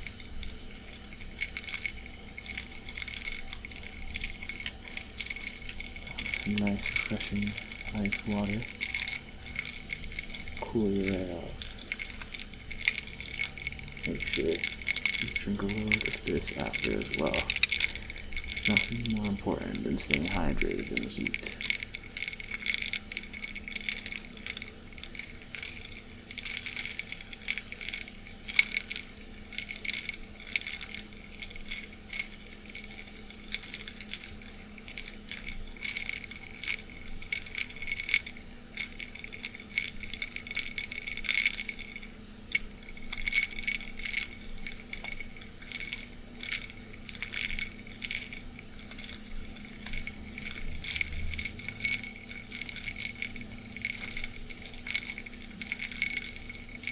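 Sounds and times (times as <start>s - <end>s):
ice cubes clinking in glass: 0.0s - 56.9s.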